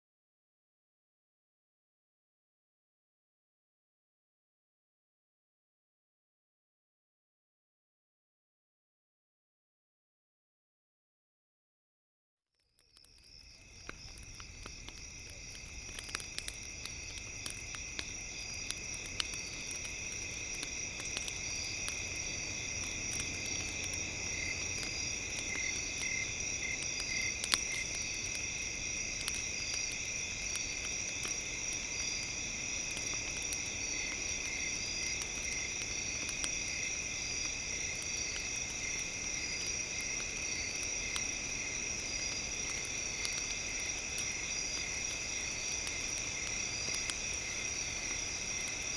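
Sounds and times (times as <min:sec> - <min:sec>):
campfire crackling: 0:12.8 - 0:48.9
insects chirring: 0:12.8 - 0:48.9.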